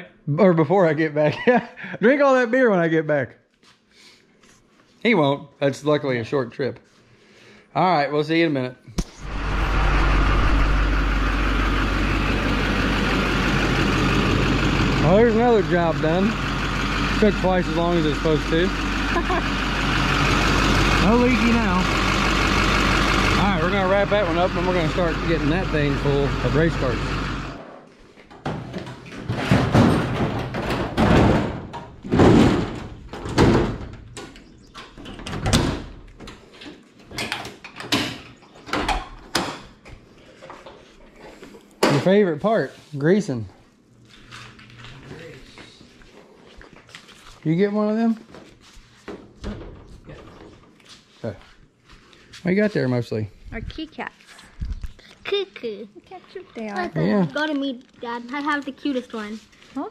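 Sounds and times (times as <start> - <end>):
diesel truck engine idling: 9.3 - 27.6
metal bangs and clanks: 28.5 - 34.4.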